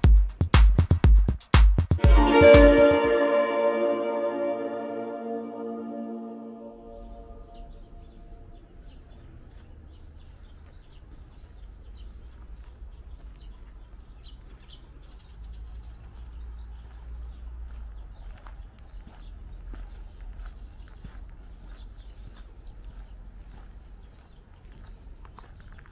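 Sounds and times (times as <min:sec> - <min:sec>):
small birds chirping: 0:00.0 - 0:01.2, 0:06.9 - 0:25.9.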